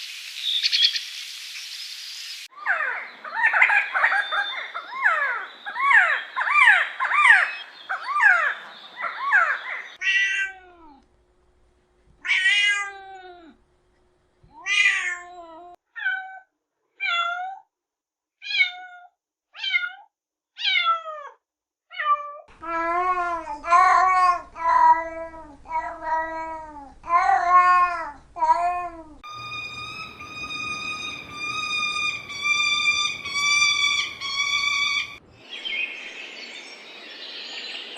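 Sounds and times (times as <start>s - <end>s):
cats meowing: 10.0s - 11.0s, 12.2s - 13.6s, 14.5s - 17.6s.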